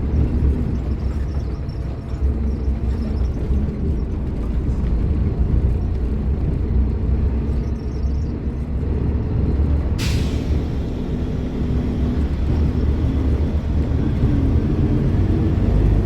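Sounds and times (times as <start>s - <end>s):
bus diesel engine rumbling: 0.0s - 16.0s
air release hiss: 10.0s - 11.0s.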